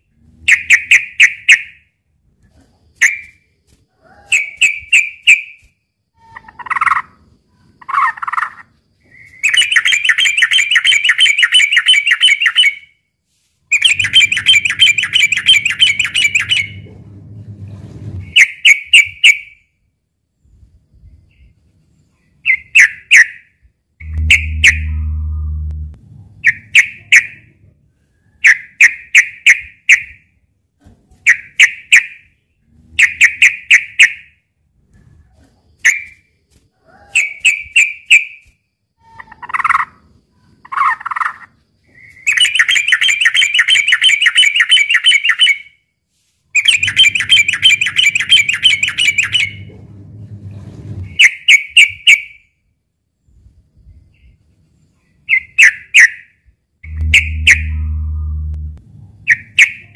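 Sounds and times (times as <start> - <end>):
bird chattering calls: 13.7 - 16.8, 24.0 - 25.5, 46.6 - 49.7, 56.9 - 58.4
bird rapid trills: 13.7 - 16.8, 46.6 - 49.7, 56.9 - 58.4
low hum: 13.9 - 18.4, 24.0 - 28.0, 46.8 - 51.2, 56.8 - 59.6.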